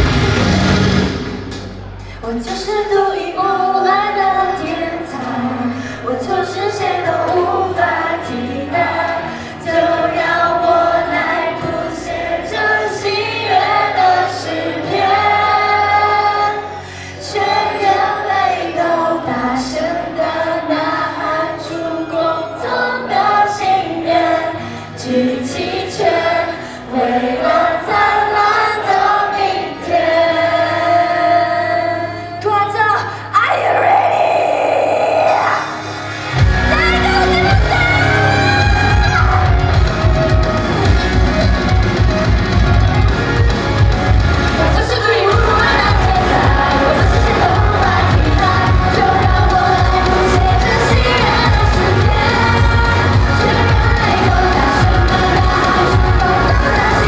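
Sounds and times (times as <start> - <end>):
woman singing: 2.2 - 35.7, 36.6 - 39.6, 44.6 - 57.0
backing music with percussive hits: 35.6 - 57.0.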